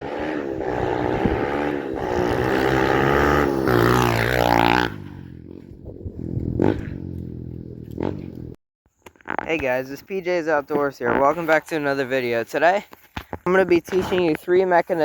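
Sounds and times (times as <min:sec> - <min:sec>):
dirt bike engine revving: 0:00.0 - 0:08.6.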